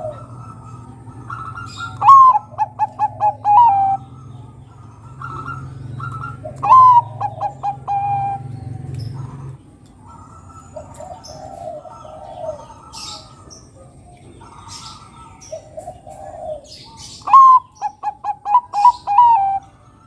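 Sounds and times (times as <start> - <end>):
soft dove coos: 0.0 - 19.7
dove singing: 0.0 - 20.0.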